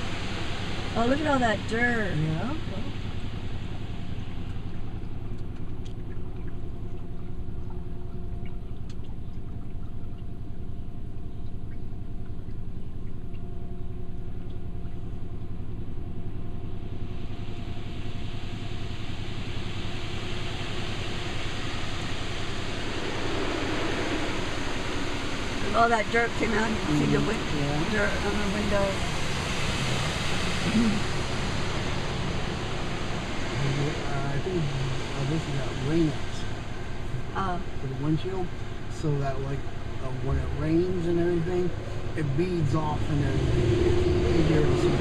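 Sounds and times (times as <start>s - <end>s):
water spraying onto car: 0.0s - 7.9s
car wash mechanical hum: 0.0s - 45.0s.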